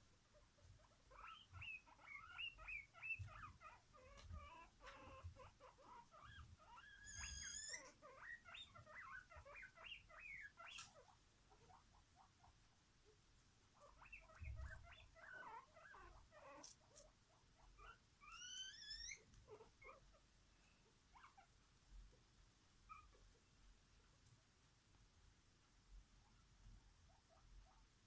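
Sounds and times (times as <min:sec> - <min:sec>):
pet animal squeaking: 0:00.3 - 0:12.5, 0:13.8 - 0:20.2, 0:21.1 - 0:21.5, 0:22.9 - 0:23.2.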